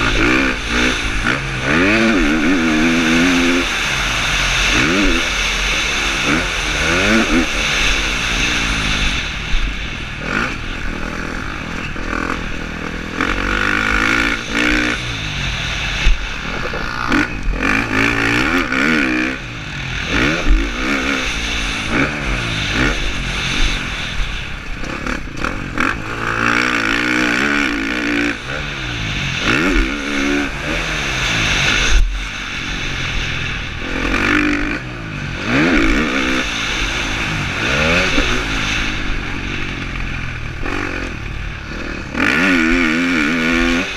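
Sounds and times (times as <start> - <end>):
motocross engine revving: 0.0 - 43.9.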